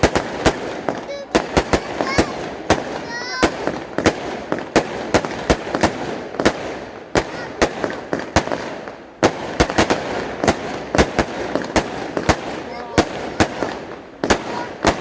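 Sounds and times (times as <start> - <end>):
firework cake shots: 0.0 - 15.0.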